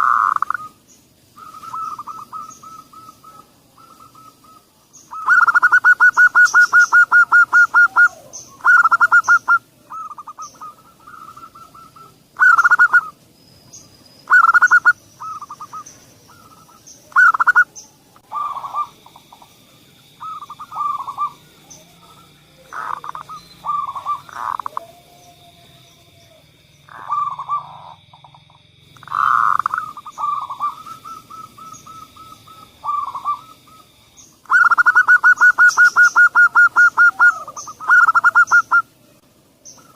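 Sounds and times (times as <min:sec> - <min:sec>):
faint steady high tone: 0:00.0 - 0:28.4
doves cooing: 0:00.0 - 0:39.9
faint bird chirps: 0:00.0 - 0:39.9.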